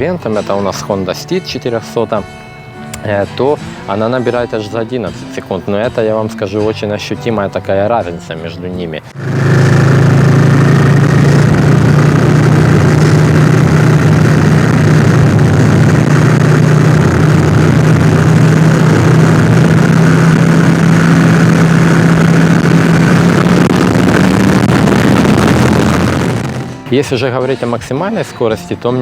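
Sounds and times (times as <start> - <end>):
motorcycle engine running: 9.1 - 27.0.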